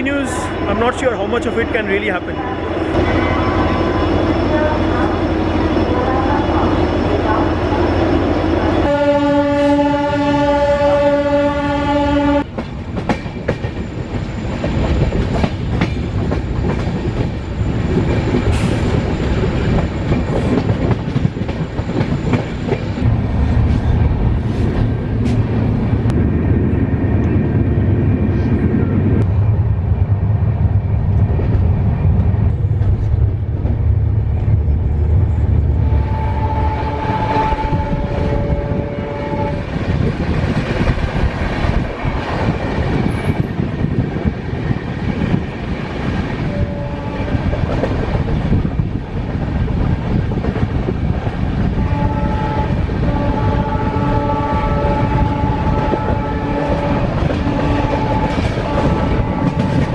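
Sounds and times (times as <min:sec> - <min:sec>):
train rumbling along track: 0:00.0 - 0:59.9
train horn: 0:02.3 - 0:06.7, 0:08.4 - 0:12.5, 0:35.8 - 0:39.8, 0:46.4 - 0:47.5, 0:51.8 - 0:59.9.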